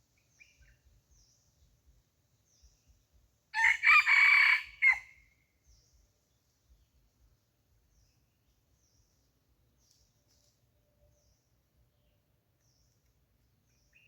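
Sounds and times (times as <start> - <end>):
rooster crowing: 3.6 - 5.2.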